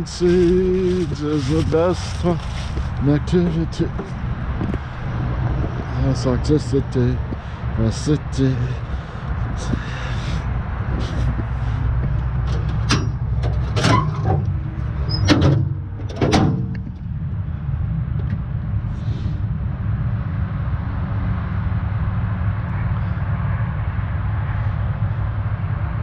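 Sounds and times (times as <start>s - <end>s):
vehicle engine running: 0.0s - 26.0s
sharp clunks: 15.2s - 16.9s.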